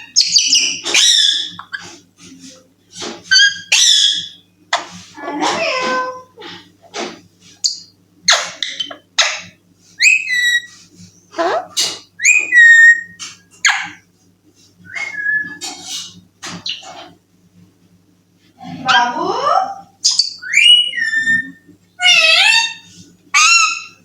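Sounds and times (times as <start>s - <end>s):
parrot whistles and calls: 0.0s - 1.9s, 3.3s - 4.4s, 7.6s - 10.8s, 11.4s - 14.0s, 14.9s - 15.9s, 20.0s - 24.0s.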